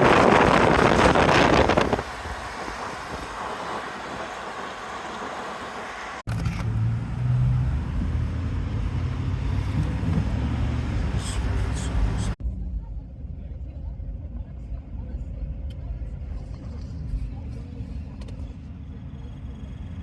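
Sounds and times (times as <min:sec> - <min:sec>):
wind buffeting microphone: 0:00.0 - 0:04.4
car engine and road rumble: 0:00.0 - 0:20.0.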